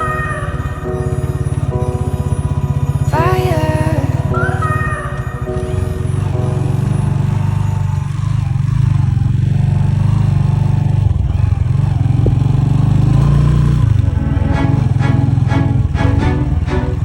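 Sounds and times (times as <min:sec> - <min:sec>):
motorcycle engine running: 0:06.0 - 0:16.0.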